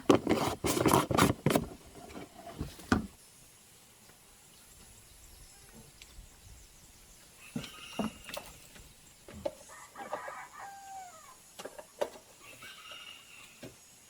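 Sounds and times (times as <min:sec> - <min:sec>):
rooster crowing: 0:09.7 - 0:11.4, 0:12.5 - 0:13.6.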